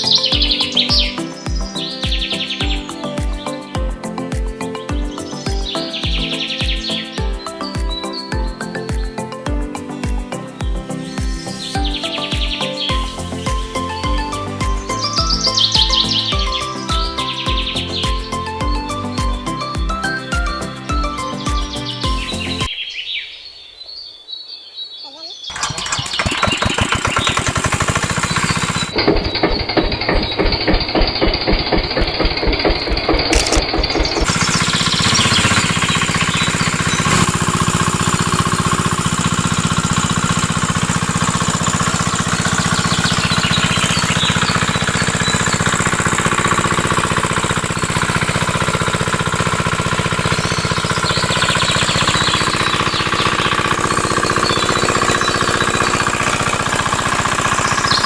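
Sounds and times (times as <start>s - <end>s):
small engine knocking: 12.9s - 19.0s, 25.5s - 58.0s.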